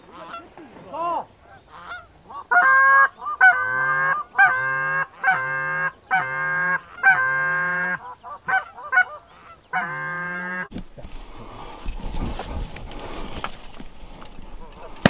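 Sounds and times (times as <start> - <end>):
goose call honks: 0.0 - 10.7
goose call clucks: 0.0 - 10.8
sharp crack: 10.7 - 15.0.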